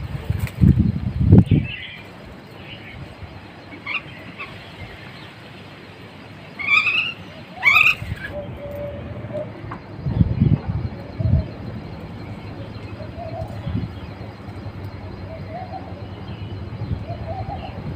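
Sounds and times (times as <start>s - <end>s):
small birds chirping: 0.0s - 17.9s
low rumbling bursts: 8.0s - 17.9s.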